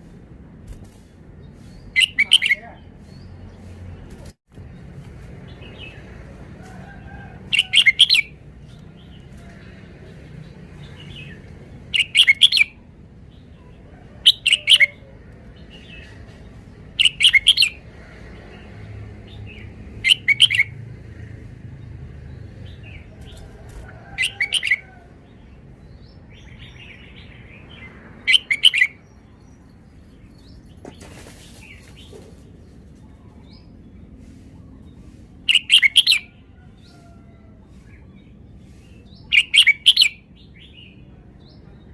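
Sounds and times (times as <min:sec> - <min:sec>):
bird singing chirpy phrases: 0:01.4 - 0:04.8, 0:10.3 - 0:17.8, 0:25.4 - 0:31.0.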